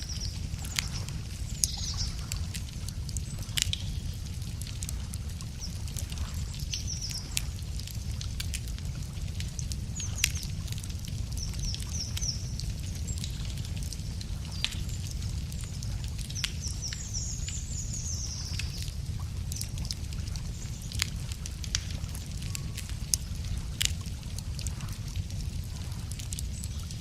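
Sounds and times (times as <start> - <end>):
campfire crackling and popping: 0.0 - 27.0
low rumble of fire: 0.0 - 27.0.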